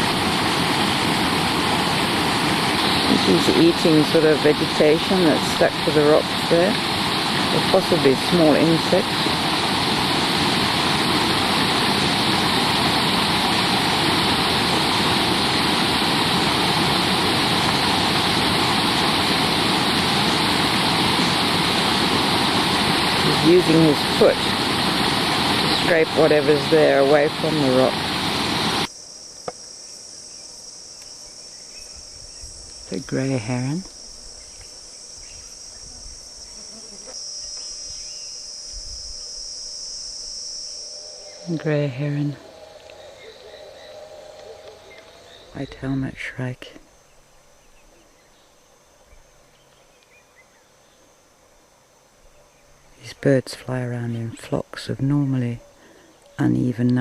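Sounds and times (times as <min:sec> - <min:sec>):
river water rushing over rocks: 0:00.0 - 0:28.9
insects shrilling: 0:00.0 - 0:57.0.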